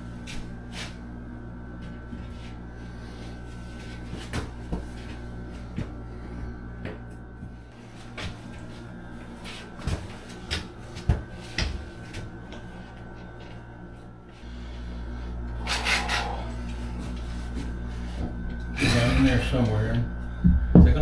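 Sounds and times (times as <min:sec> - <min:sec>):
steady low hum: 0:00.0 - 0:21.0
scraping rub: 0:15.6 - 0:18.1.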